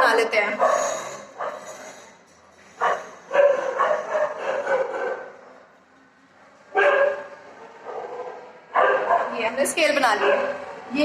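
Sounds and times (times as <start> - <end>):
dog barking: 0.6 - 1.6, 2.8 - 5.5, 6.7 - 9.4, 10.2 - 10.6.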